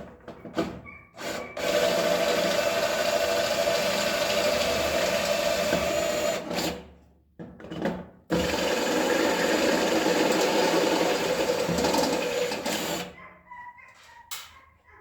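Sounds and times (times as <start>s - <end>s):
electric drill boring sheet metal: 1.2s - 6.8s, 8.3s - 13.1s.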